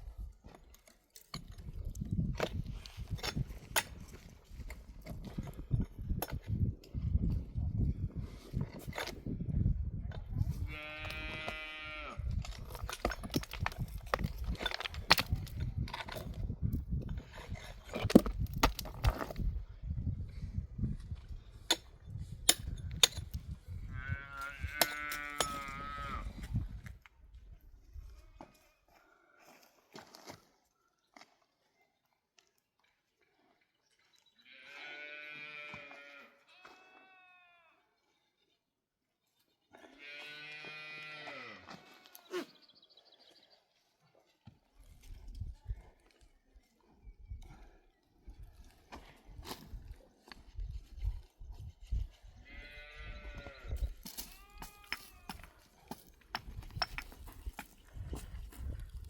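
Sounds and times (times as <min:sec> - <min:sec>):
sheep bleating: 0:10.6 - 0:12.3, 0:34.4 - 0:37.8, 0:39.9 - 0:42.4.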